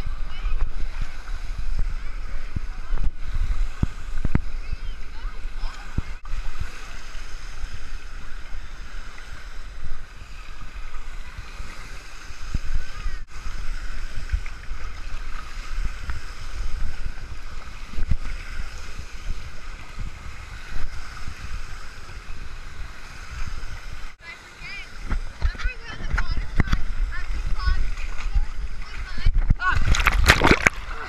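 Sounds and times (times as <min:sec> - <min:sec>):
water rushing and splashing: 0:00.0 - 0:31.0
wind rumbling on microphone: 0:00.0 - 0:31.0.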